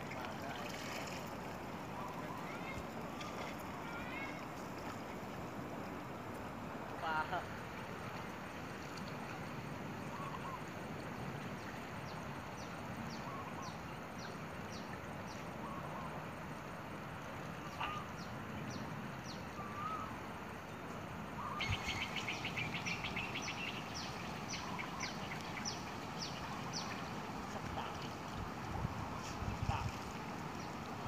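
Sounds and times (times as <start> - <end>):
steady outdoor hiss: 0.0 - 31.0
lower whistled bird notes: 19.6 - 20.1.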